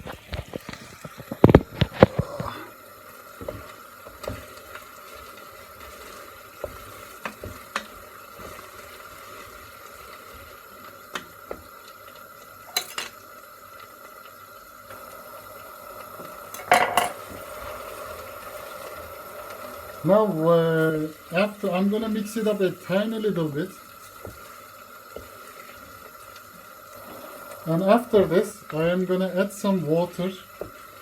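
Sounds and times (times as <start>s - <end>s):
spoon stirring stew in a pot: 3.4s - 11.7s, 27.9s - 29.2s.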